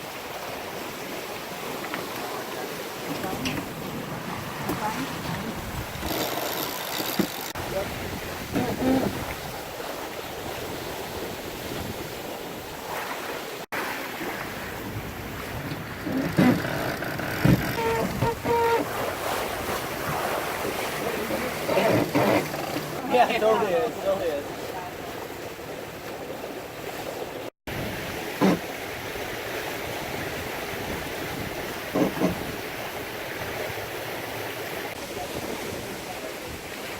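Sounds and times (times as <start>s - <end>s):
water rushing along hull: 0.0s - 36.9s
wind buffeting microphone: 3.2s - 6.3s, 7.6s - 12.8s
wind on microphone: 3.3s - 6.4s, 7.2s - 12.8s, 14.6s - 20.9s, 29.8s - 34.0s.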